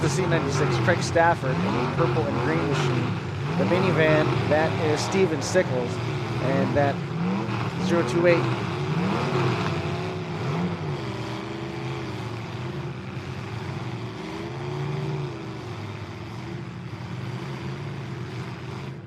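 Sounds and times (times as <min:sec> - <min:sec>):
truck engines revving: 0:00.0 - 0:19.0.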